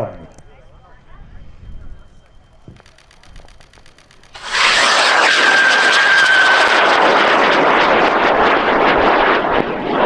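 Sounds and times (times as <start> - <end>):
rocket motor roaring: 2.8 - 9.5.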